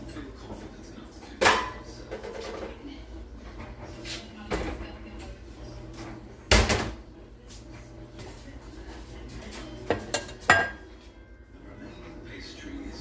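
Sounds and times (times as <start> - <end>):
dishes and utensils clattering: 0.0 - 5.3, 9.3 - 11.2.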